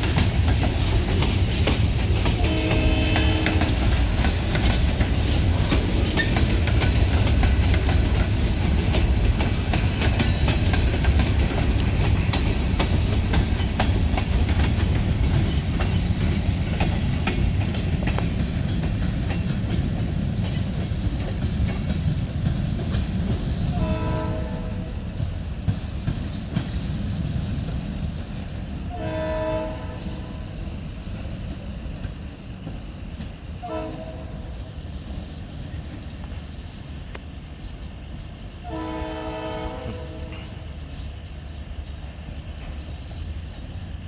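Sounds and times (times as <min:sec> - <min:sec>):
train wheel clicks: 0:00.0 - 0:23.9
freight train rumbling: 0:00.0 - 0:44.0
locomotive horn blast: 0:02.4 - 0:04.0, 0:23.7 - 0:25.0, 0:28.9 - 0:30.4, 0:33.6 - 0:34.5, 0:38.6 - 0:40.7.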